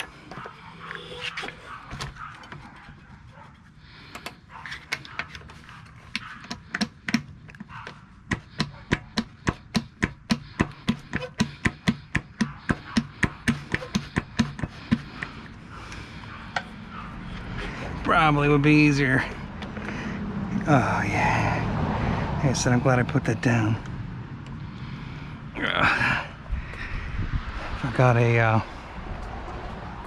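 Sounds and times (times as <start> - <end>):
sharp metal taps: 6.1 - 15.4.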